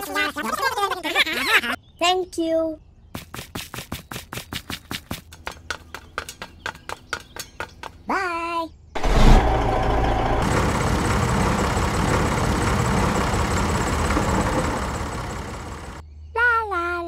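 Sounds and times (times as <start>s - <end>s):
tractor engine running: 9.0s - 16.0s.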